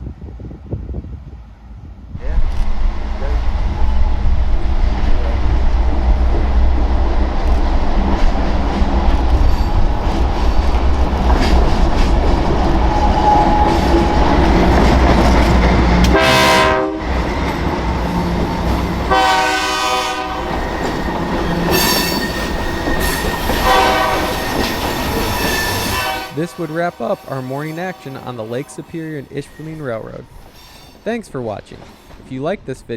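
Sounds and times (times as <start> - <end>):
diesel locomotive rumbling: 0.6 - 32.9
train air horn blasts: 16.0 - 17.3, 18.3 - 21.0, 21.7 - 30.1.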